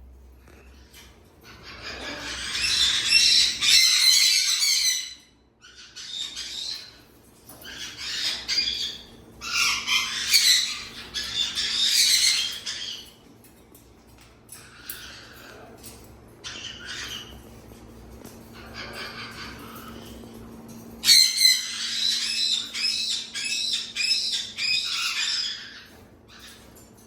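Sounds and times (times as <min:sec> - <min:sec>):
parrot squawking: 0:01.4 - 0:07.0, 0:07.6 - 0:13.1, 0:16.4 - 0:17.4, 0:21.0 - 0:26.7.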